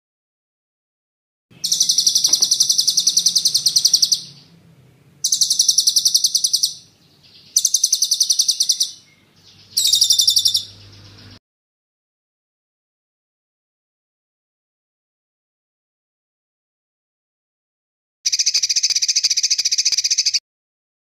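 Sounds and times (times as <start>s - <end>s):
songbird rapid high trills: 1.6s - 4.6s, 5.2s - 11.4s.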